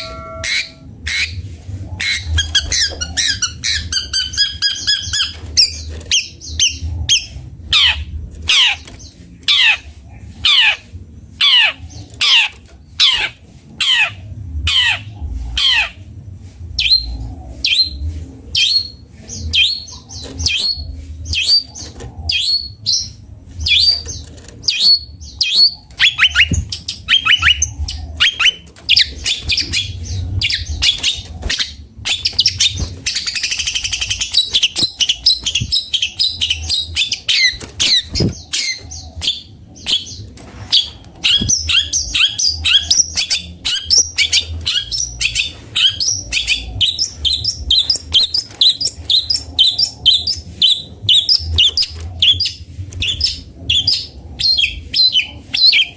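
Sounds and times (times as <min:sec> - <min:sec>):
bird singing varied song: 0:16.8 - 0:55.9.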